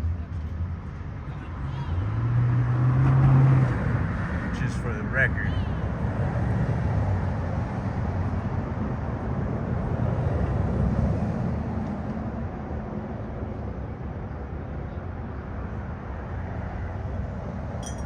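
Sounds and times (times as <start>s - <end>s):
vehicle passing by: 1.4s - 11.6s.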